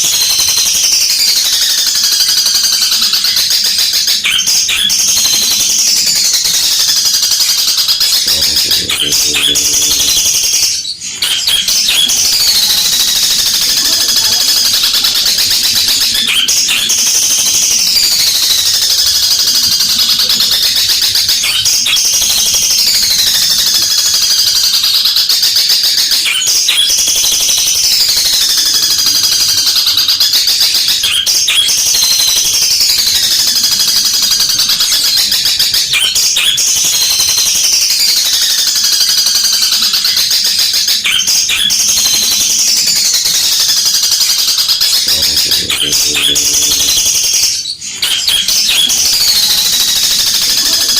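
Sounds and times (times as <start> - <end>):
shrike singing: 0.0 - 50.9.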